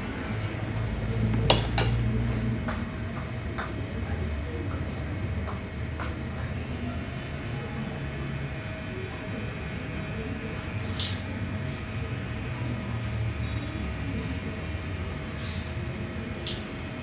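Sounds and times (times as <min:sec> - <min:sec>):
hard objects clinking: 0:01.3 - 0:02.1.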